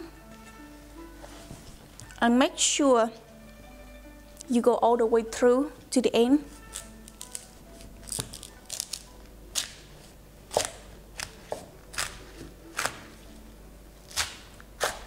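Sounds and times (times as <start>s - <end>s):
knife crunching through pineapple: 6.6s - 9.7s, 10.5s - 13.1s.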